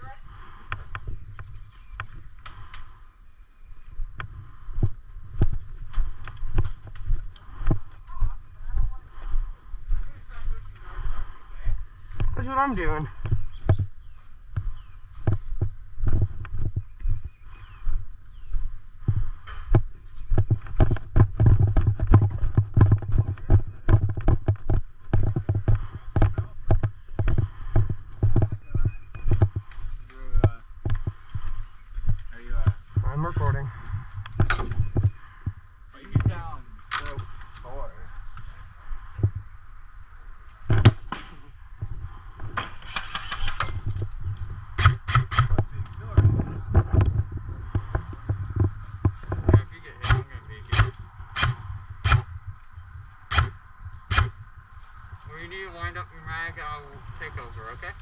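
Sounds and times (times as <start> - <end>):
sharp clicks: 42.9 - 44.0, 44.8 - 46.0, 50.0 - 52.7, 53.3 - 54.4
gear knocking: 44.8 - 45.7, 53.3 - 54.4.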